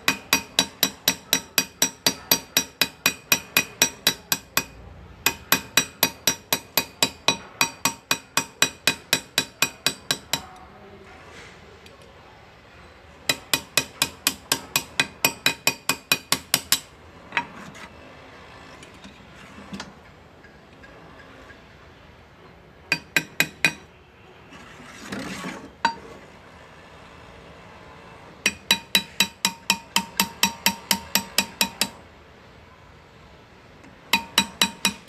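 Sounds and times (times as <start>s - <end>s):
hammer tapping graver into metal: 0.0s - 10.6s, 13.3s - 17.5s, 22.9s - 23.9s, 28.4s - 32.0s, 34.1s - 35.0s.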